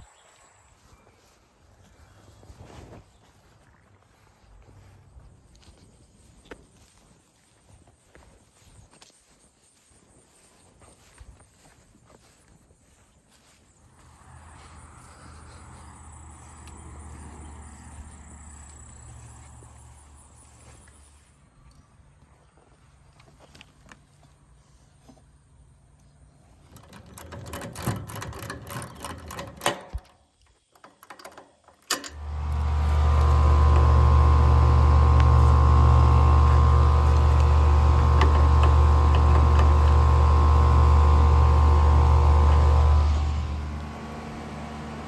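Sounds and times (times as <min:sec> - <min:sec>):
machine hum with droning tones: 0:13.8 - 0:22.6, 0:32.1 - 0:45.0
clicking and handling noises: 0:26.0 - 0:45.0.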